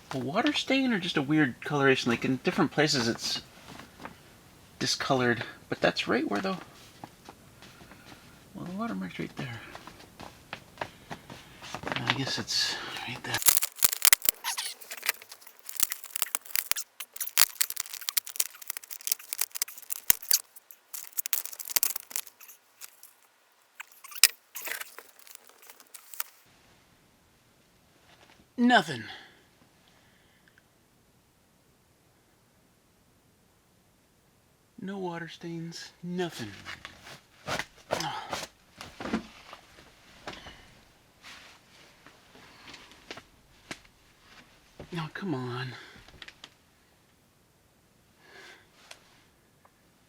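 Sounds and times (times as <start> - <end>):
rustling: 13.0 - 26.5
plastic sheeting crinkling: 13.3 - 26.4.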